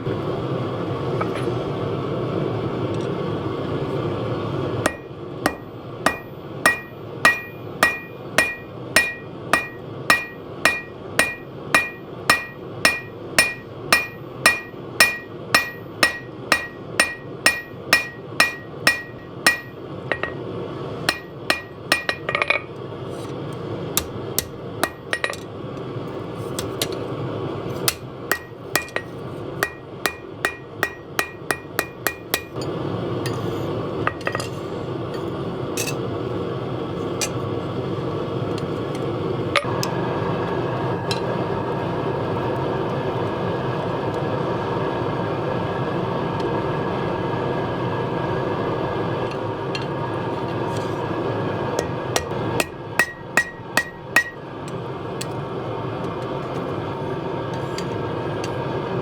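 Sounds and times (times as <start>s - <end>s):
hammer striking steel on anvil: 4.8s - 20.4s, 21.1s - 22.7s, 24.0s - 25.5s, 27.7s - 36.0s, 37.1s - 37.5s, 51.8s - 55.4s.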